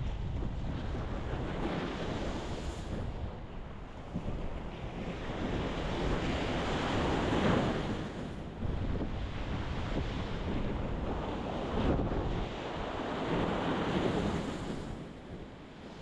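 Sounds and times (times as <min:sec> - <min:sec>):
ocean surf breaking on rocks: 0:04.2 - 0:16.0.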